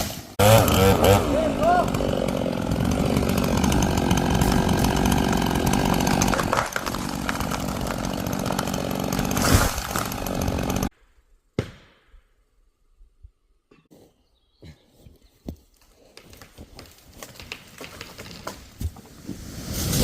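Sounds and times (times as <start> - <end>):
chainsaw cutting a tree: 0.0 - 10.9.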